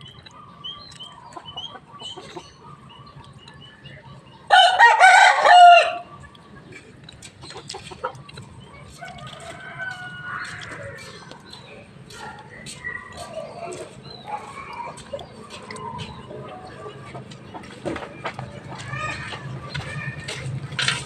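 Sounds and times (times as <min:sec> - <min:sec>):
rooster crowing: 0:04.5 - 0:06.1
soft clucking: 0:06.1 - 0:21.0.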